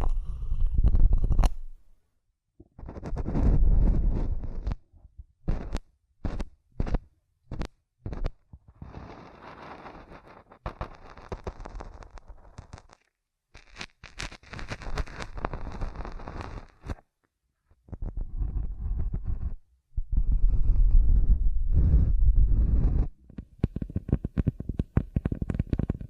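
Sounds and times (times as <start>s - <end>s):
sharp asmr tapping sounds: 5.4s - 17.0s, 21.7s - 26.0s.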